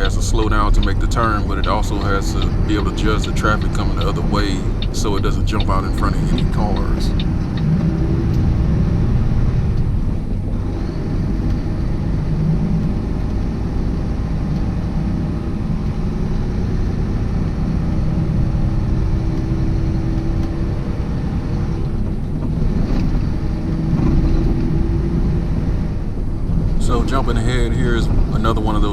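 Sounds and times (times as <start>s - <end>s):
faint hum: 0.0s - 28.9s
truck engine and road rumble: 0.0s - 28.9s.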